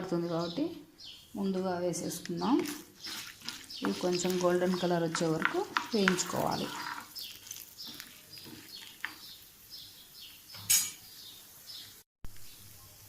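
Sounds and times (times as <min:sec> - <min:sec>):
lentils frying in oil: 0:01.3 - 0:13.0
metal spatula scraping a pan: 0:03.0 - 0:09.3, 0:10.6 - 0:11.1.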